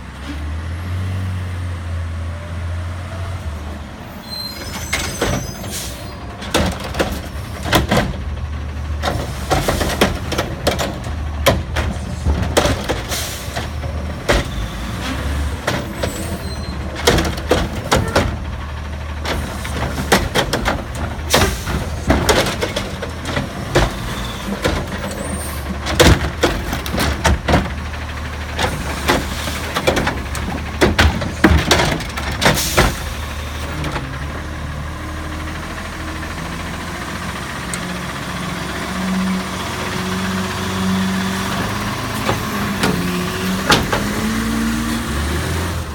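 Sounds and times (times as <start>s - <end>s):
garbage truck diesel engine running: 3.5s - 45.9s
bangs and clatters of bins: 4.7s - 34.3s, 40.0s - 45.9s.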